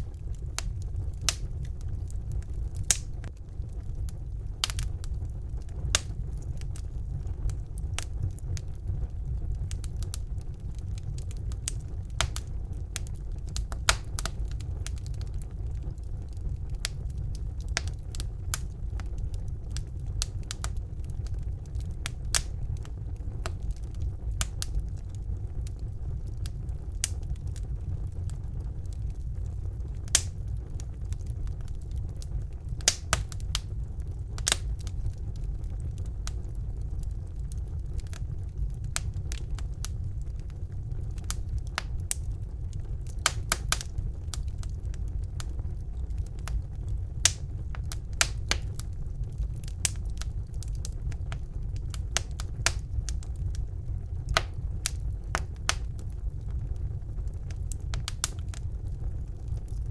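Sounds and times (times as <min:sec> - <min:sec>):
fire rumbling: 0:00.0 - 0:59.9
logs crackling and popping: 0:00.0 - 0:59.9.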